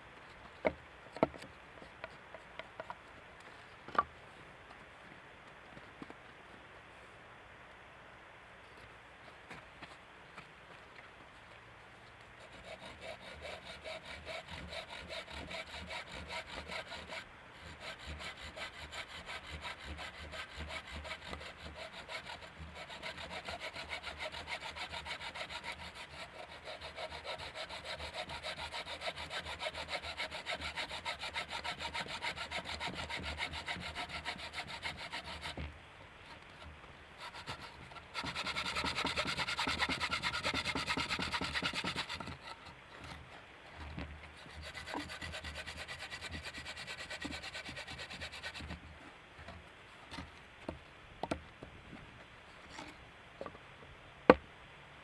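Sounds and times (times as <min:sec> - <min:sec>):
hand saw cutting wood: 0:12.4 - 0:35.7, 0:36.6 - 0:43.2, 0:43.8 - 0:48.8.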